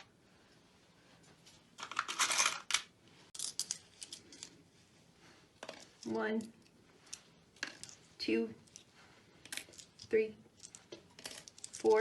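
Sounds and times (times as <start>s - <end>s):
coins clinking: 9.5s - 12.0s.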